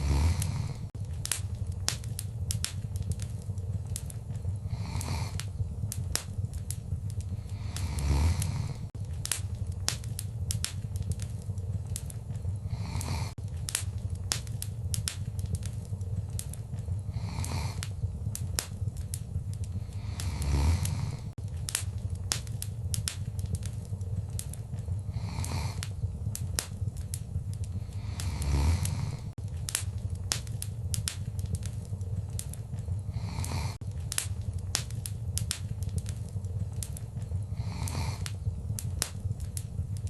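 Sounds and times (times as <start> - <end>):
fire pops and snaps: 0.0 - 40.0
low rumble of flames: 0.0 - 40.0.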